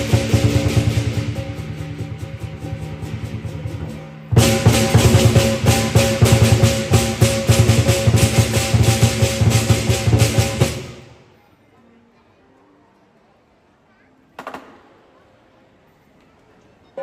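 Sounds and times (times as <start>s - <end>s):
drum cymbals and gong percussion: 0.0s - 11.4s.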